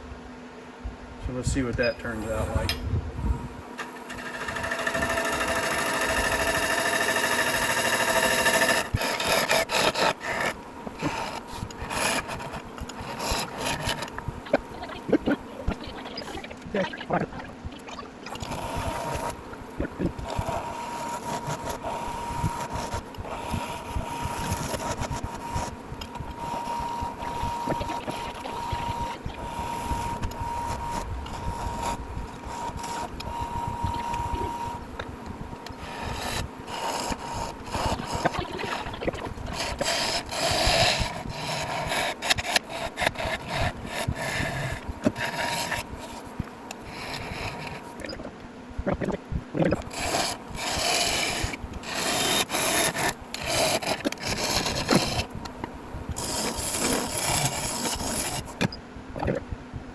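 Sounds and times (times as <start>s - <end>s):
lathe high whine: 1.3s - 48.0s
lathe tool scraping wood: 3.8s - 15.8s, 35.8s - 48.1s, 49.8s - 55.3s, 56.2s - 58.6s.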